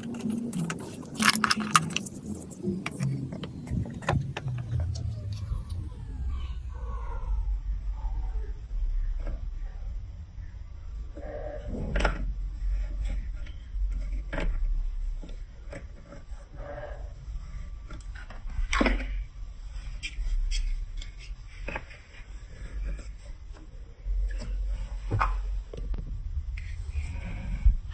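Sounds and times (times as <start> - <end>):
plastic blocks and marbles clicking: 0.0 - 5.1
low hum: 0.0 - 27.9.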